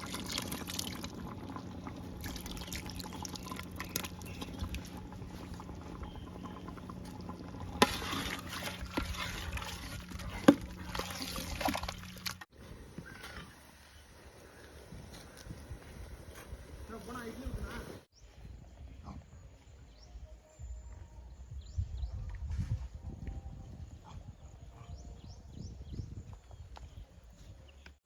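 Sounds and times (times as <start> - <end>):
liquid pouring and splashing: 0.0 - 12.5.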